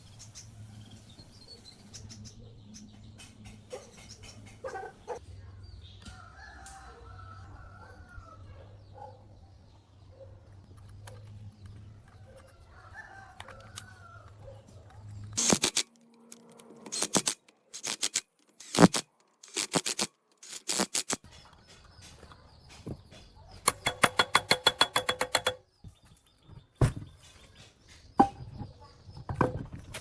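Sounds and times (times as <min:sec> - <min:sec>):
rooster crowing: 0:06.1 - 0:08.4.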